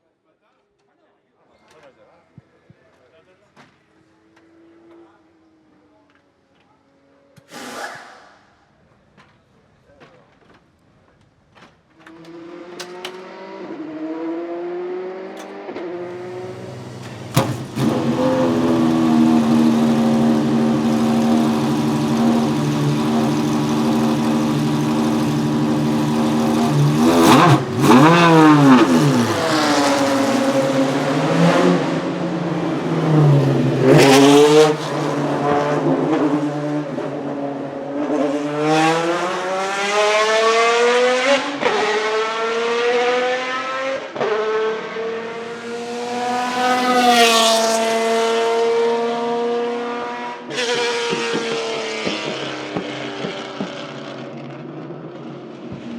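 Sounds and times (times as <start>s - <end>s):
race car engine: 12.0s - 55.9s.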